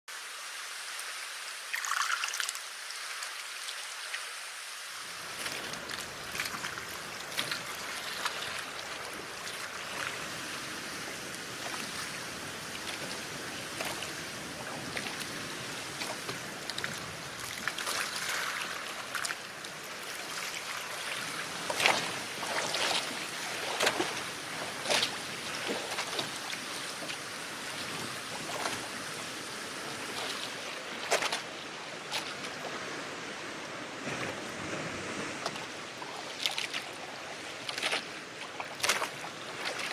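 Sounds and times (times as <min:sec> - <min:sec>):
water rushing around boat: 0:00.1 - 0:39.9
sharp water splashes: 0:01.7 - 0:03.8, 0:05.2 - 0:27.1, 0:30.0 - 0:31.5, 0:35.4 - 0:39.9.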